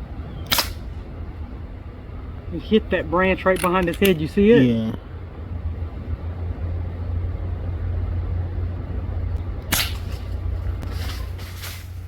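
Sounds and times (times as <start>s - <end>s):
vehicle engine idling rumble: 0.0s - 12.0s
air rifle shot crack: 0.4s - 0.9s, 9.6s - 10.3s.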